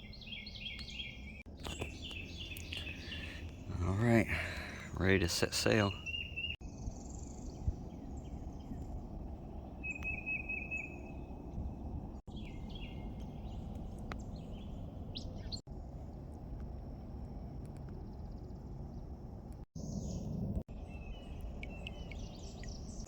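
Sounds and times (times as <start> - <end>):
wild birds chirping and calling: 0.0 - 8.9, 9.5 - 15.6
low background rumble: 0.0 - 23.0.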